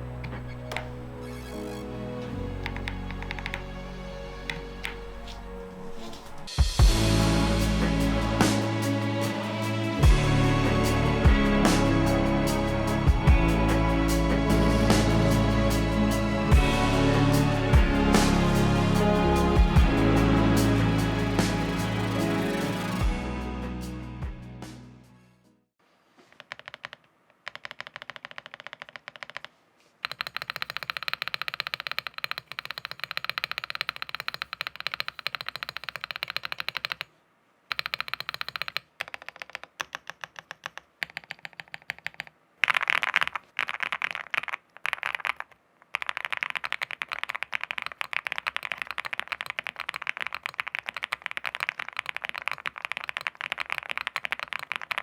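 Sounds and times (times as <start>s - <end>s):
keyboard key clicks: 37.7s - 55.0s.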